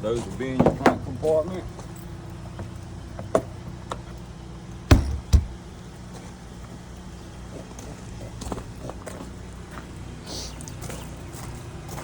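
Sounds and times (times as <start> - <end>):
steady low hum: 1.7 - 10.3
loud sharp knocks: 4.9 - 5.6.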